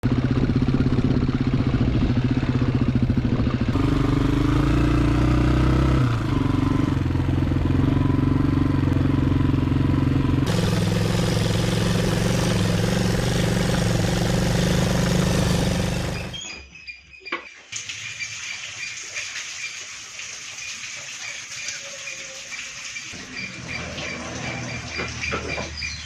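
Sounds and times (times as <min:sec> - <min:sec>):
motorcycle engine running: 0:00.0 - 0:16.5.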